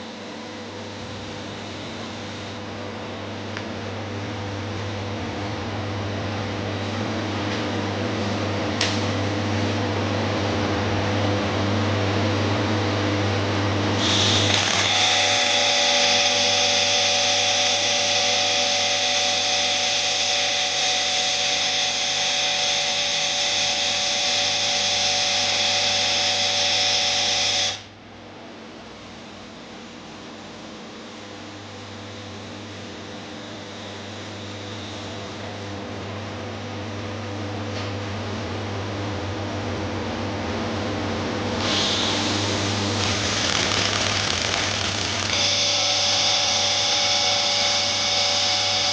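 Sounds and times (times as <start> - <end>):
welding machine hum: 0.0 - 27.9, 41.4 - 48.9
higher machine whine: 0.0 - 28.0, 29.2 - 48.9.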